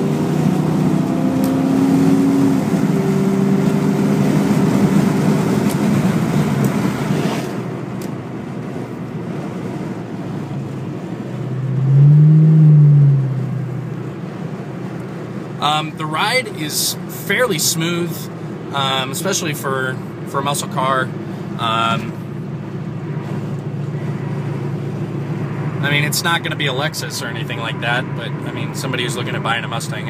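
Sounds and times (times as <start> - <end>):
car engine accelerating: 0.0 - 15.7.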